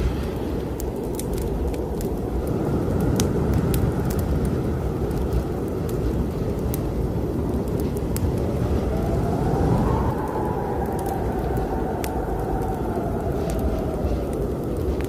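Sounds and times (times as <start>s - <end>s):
snowstorm wind roaring: 0.0s - 15.0s
wood fire crackling: 0.0s - 15.0s.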